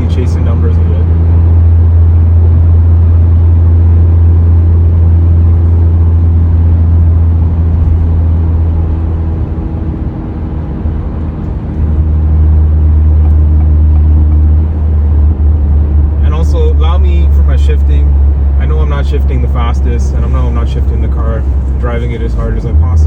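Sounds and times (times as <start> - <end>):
car engine drone from cabin: 0.0 - 23.0.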